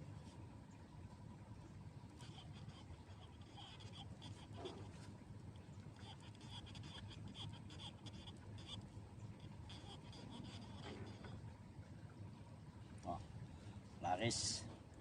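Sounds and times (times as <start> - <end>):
low steady hum: 0.0 - 15.0
animal chirping: 2.2 - 4.9, 6.0 - 11.4.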